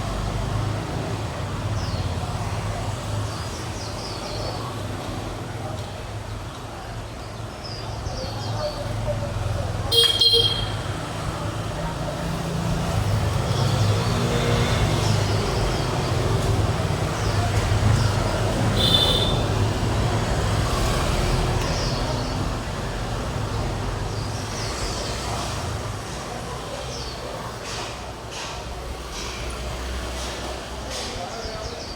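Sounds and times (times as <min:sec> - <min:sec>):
road traffic rumble: 0:00.0 - 0:31.9.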